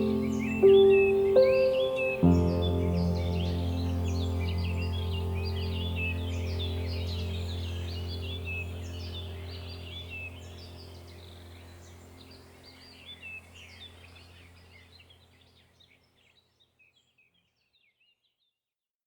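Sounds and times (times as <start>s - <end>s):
small birds chirping: 0.0s - 18.6s
steady low hum: 2.3s - 15.3s.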